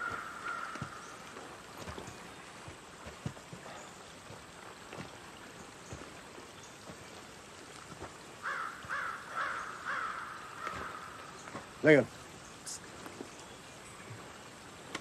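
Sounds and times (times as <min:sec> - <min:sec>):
crow-like bird caws: 0:00.0 - 0:01.1, 0:08.4 - 0:11.3.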